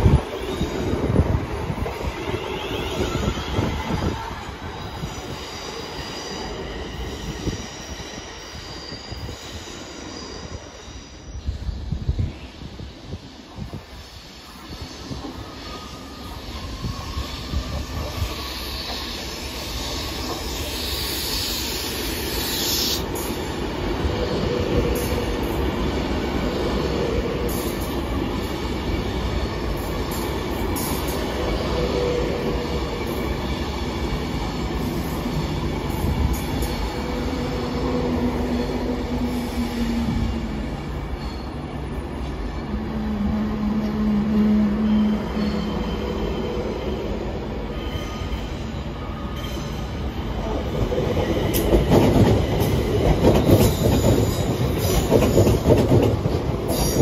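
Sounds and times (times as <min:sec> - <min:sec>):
train moving: 0:00.0 - 0:57.0
rail clatter: 0:50.4 - 0:57.0.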